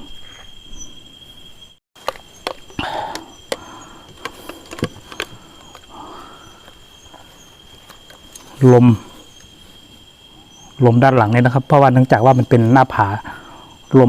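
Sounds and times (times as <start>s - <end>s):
crickets trilling: 0.0s - 14.0s
sharp clicks and knocks: 2.0s - 6.0s.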